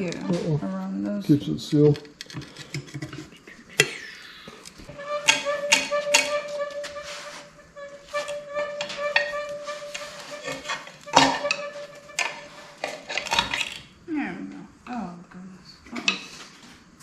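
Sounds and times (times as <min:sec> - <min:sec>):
flute-like whistling tone: 0:04.0 - 0:12.8.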